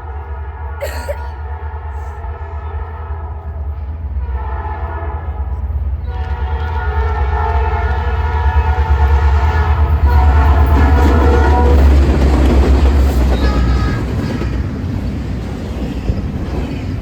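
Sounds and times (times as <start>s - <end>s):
locomotive horn blast: 1.4s - 12.0s.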